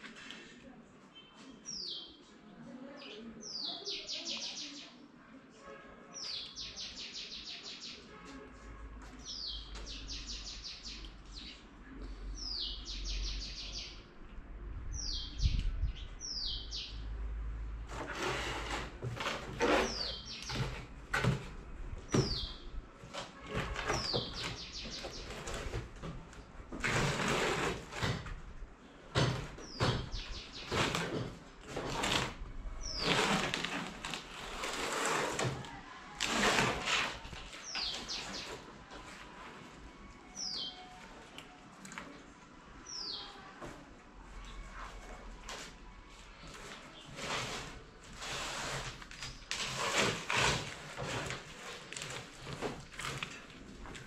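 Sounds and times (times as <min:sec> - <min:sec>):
sharp clicks and rustles: 0:46.4 - 0:54.0.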